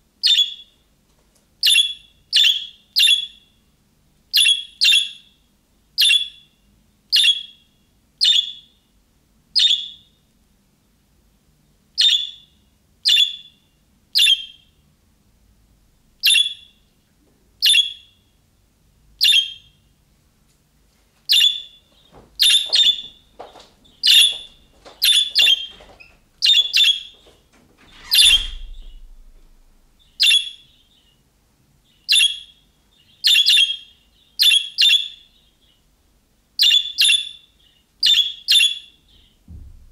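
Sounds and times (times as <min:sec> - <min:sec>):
budgerigar contact calls: 0:22.4 - 0:27.2
low thump: 0:27.9 - 0:30.0, 0:39.5 - 0:39.9.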